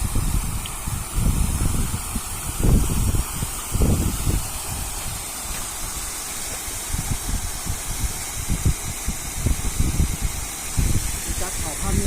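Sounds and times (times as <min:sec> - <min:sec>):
steady hiss: 0:00.0 - 0:12.0
wind buffeting microphone: 0:00.0 - 0:12.0.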